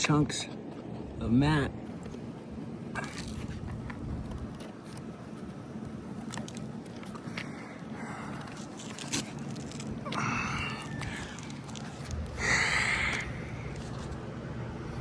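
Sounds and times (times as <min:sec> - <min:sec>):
roof shingles scraping and crackling: 0:01.9 - 0:12.4.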